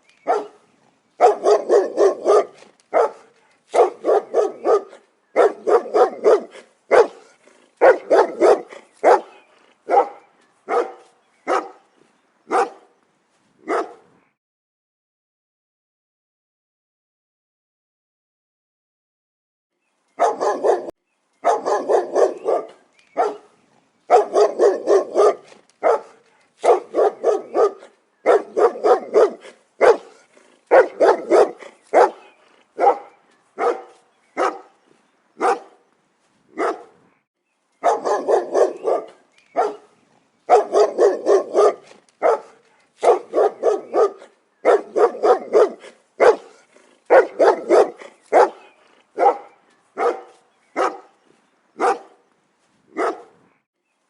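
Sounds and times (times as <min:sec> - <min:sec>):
dog barking: 0:00.2 - 0:00.6, 0:01.2 - 0:11.8, 0:12.5 - 0:12.9, 0:13.6 - 0:14.1, 0:20.2 - 0:23.5, 0:24.1 - 0:34.8, 0:35.4 - 0:35.8, 0:36.6 - 0:37.0, 0:37.8 - 0:39.9, 0:40.5 - 0:51.2, 0:51.8 - 0:52.2, 0:52.9 - 0:53.4.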